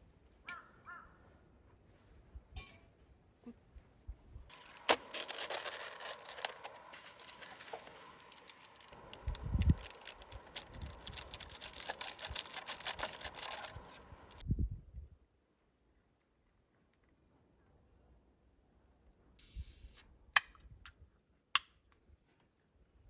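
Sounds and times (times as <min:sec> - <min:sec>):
camping gear rustling and scraping: 0:04.5 - 0:14.4.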